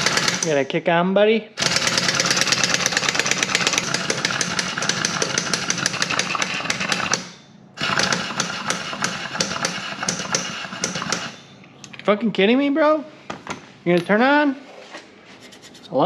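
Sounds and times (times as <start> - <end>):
pneumatic impact wrench hammering: 0.0 - 0.5, 1.6 - 11.6.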